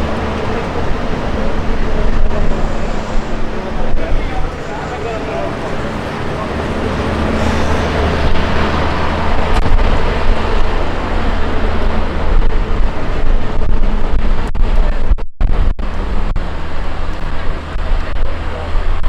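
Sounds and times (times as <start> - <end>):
street noise: 0.0 - 19.0
wind buffeting microphone: 0.0 - 19.0.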